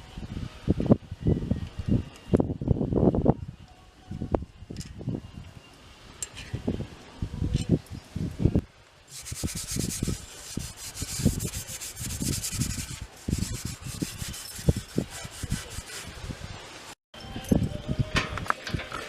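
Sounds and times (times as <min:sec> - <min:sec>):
scrubbing strokes on bicycle parts: 0:09.1 - 0:17.0.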